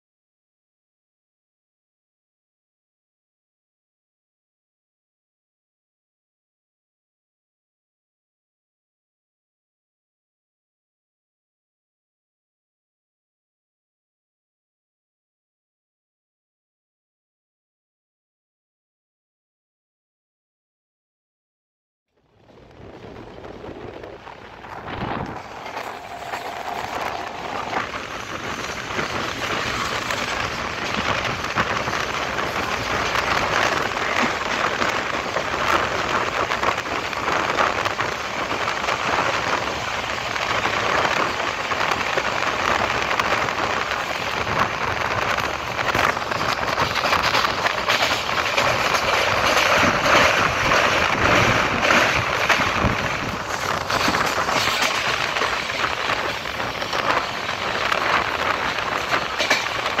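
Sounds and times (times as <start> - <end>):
train wheels rushing on rail: 22.4 - 60.0
air rushing past: 23.4 - 30.9.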